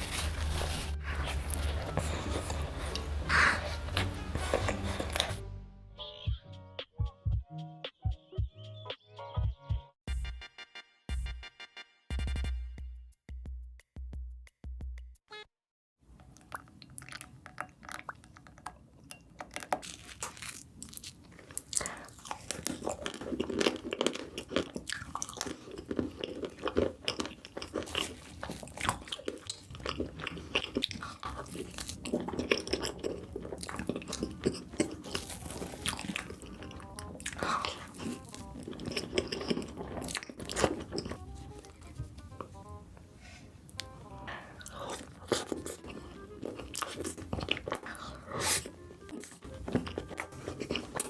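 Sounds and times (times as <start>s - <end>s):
chocolate crunching and chewing: 0.0s - 5.4s, 16.3s - 42.8s, 43.7s - 51.0s.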